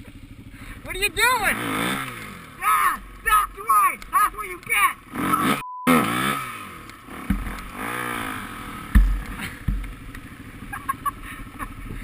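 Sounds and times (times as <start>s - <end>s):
dirt bike engine revving: 0.1s - 12.0s
sharp thumps: 6.8s - 8.1s, 8.8s - 10.3s.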